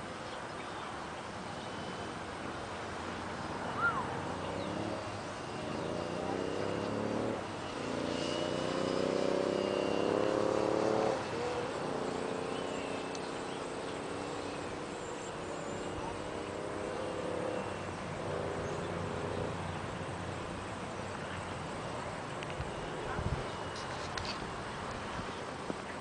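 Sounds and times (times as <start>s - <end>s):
model airplane motor whine: 1.3s - 16.3s.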